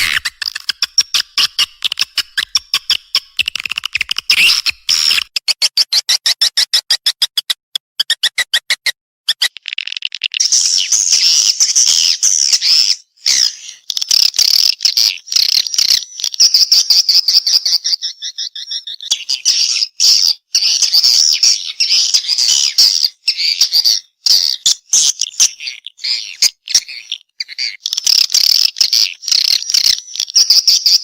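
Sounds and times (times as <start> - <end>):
high twittering chirps: 8.0 - 19.7.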